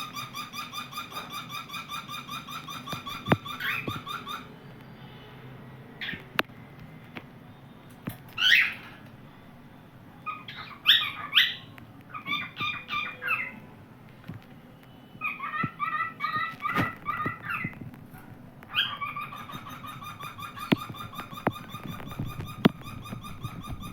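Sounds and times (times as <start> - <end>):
cockatiel chirping: 0.0 - 4.5, 8.4 - 8.9, 10.2 - 13.6, 15.1 - 17.8, 18.7 - 23.9.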